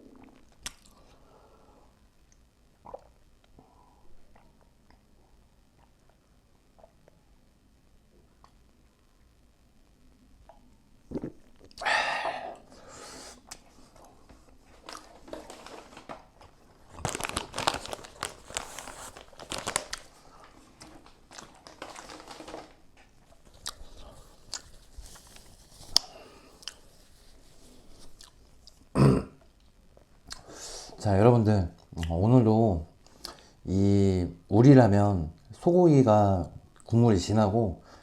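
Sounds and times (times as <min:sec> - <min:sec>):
wrapper crinkling: 0:14.6 - 0:26.2
bites and chewing: 0:23.3 - 0:26.9.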